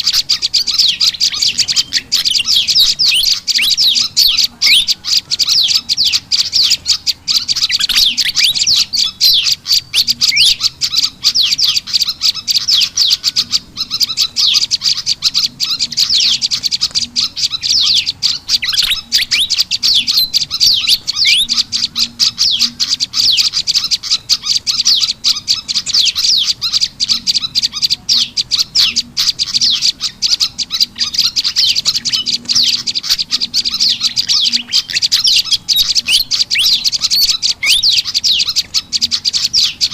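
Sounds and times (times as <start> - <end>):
birds chirping rapidly: 0.0 - 39.9.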